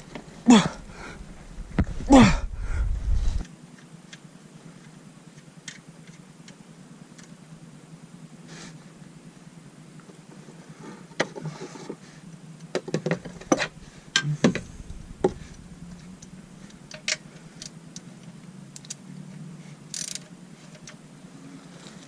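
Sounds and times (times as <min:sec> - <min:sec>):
hand tools clicking and knocking: 0:16.9 - 0:17.7.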